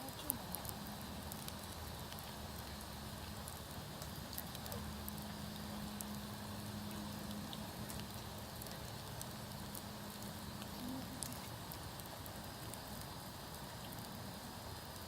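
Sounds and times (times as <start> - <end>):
burning wood popping: 0.0 - 15.0
campfire crackling: 0.0 - 15.0.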